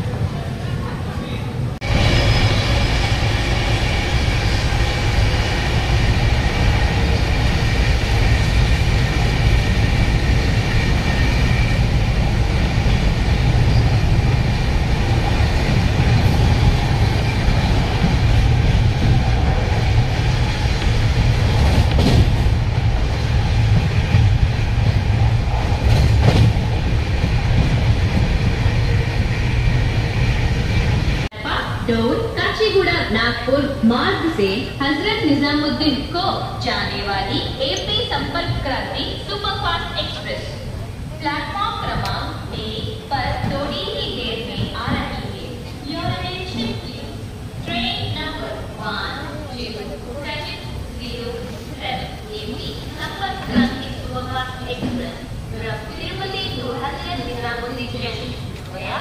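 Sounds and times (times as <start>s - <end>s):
train wheels rumbling on rails: 0.0s - 32.6s, 34.0s - 59.0s.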